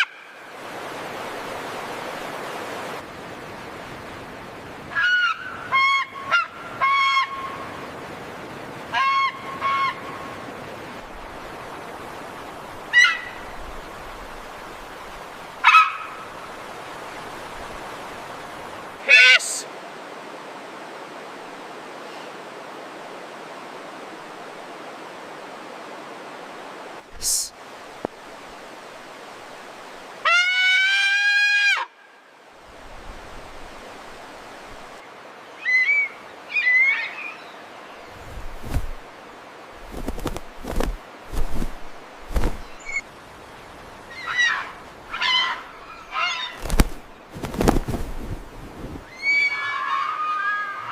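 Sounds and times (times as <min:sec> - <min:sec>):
steady background hiss: 0:00.0 - 0:50.9
bird honk-like calls: 0:08.9 - 0:10.1, 0:15.6 - 0:16.2, 0:19.1 - 0:19.4
bird calling harshly: 0:19.0 - 0:19.6, 0:42.3 - 0:43.1, 0:44.1 - 0:47.0.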